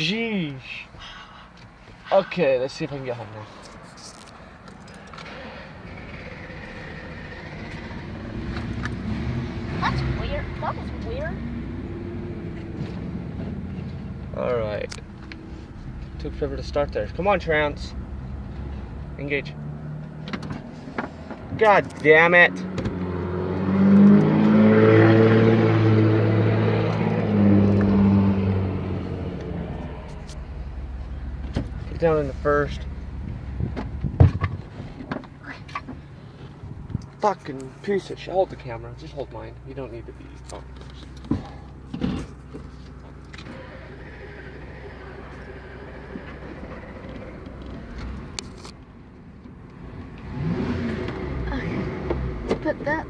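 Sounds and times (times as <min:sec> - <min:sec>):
pickup truck engine revving: 0:05.0 - 0:14.3, 0:22.2 - 0:35.1, 0:43.3 - 0:48.4, 0:50.2 - 0:53.0.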